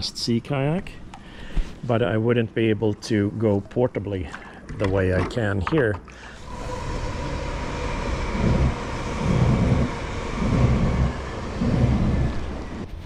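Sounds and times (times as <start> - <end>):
faint whine: 6.2 - 13.0
train rumbling past: 6.4 - 13.0.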